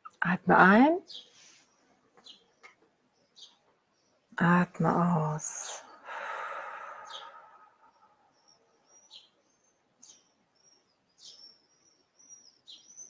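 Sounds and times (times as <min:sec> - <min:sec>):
small bird chirping: 0:01.0 - 0:04.4, 0:07.0 - 0:13.0
slow breath out: 0:05.9 - 0:08.2.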